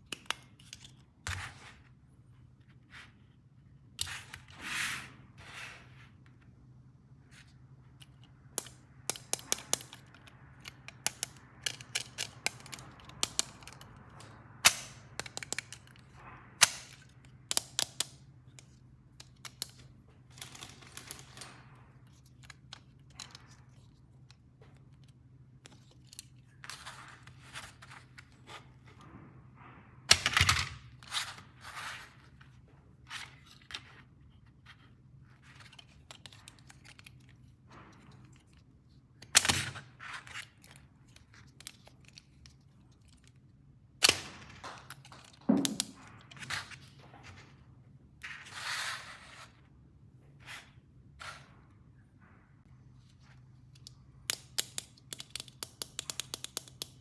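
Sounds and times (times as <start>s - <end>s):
plastic toy pieces clicking: 8.6s - 13.9s, 53.7s - 57.0s.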